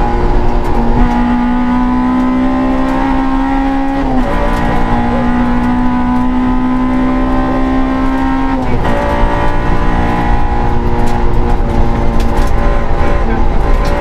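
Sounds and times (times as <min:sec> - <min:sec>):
car engine running hard: 0:00.0 - 0:14.0.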